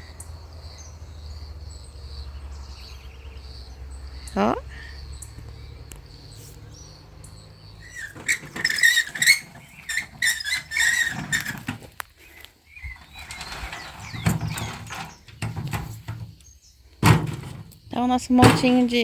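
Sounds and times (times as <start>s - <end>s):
crackling in dry brush: 7.8s - 16.6s.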